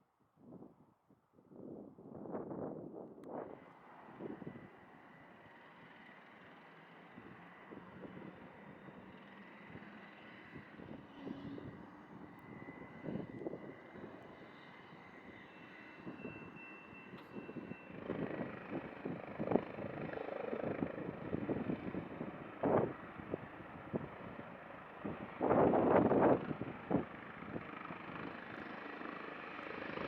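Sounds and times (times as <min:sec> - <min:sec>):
helicopter engine whine and rotor: 0:01.6 - 0:30.0
wind gusts on microphone: 0:17.4 - 0:24.4, 0:25.0 - 0:27.6.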